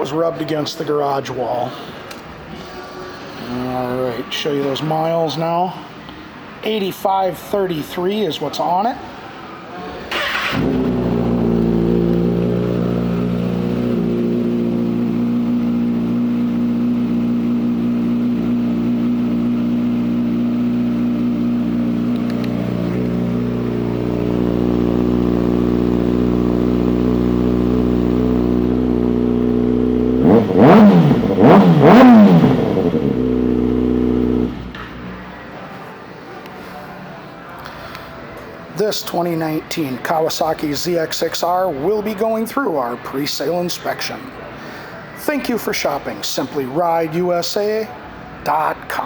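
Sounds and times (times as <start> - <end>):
motorcycle engine idling: 10.1 - 34.8
motorcycle engine revving: 10.1 - 35.1.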